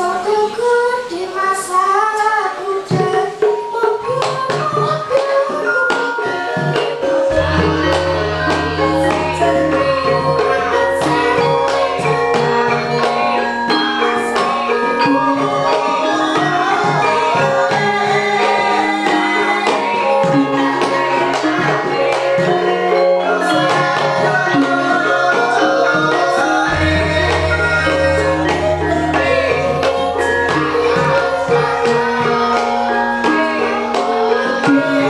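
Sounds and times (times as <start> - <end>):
person singing: 0.0 - 14.1, 15.0 - 35.0
bronze metallophones: 2.7 - 35.0
hand drum playing: 2.9 - 35.0
deep gong tone: 7.3 - 11.6, 26.7 - 31.3.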